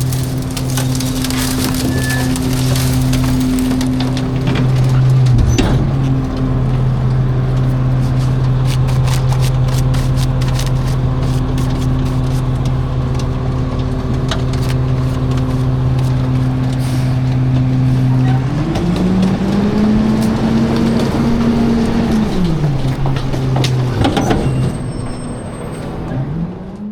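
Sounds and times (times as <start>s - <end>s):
load cracking and snapping: 0.0s - 6.9s
garbage truck engine: 0.0s - 26.9s.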